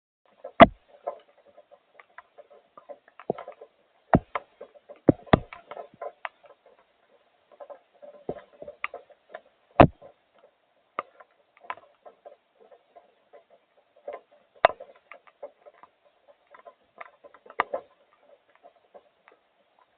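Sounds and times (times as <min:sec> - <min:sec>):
sharp knocks: 0:00.6 - 0:00.8, 0:04.2 - 0:04.4, 0:05.1 - 0:05.6, 0:09.8 - 0:10.1.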